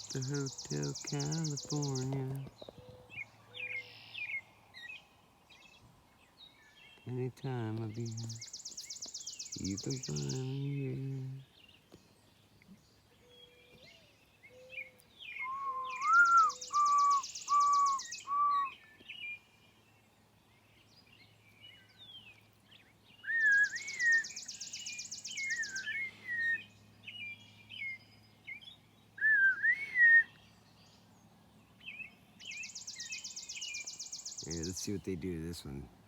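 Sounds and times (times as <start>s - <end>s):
birds singing whistled notes: 0.0s - 35.8s
bird rapid high trill: 16.0s - 18.2s.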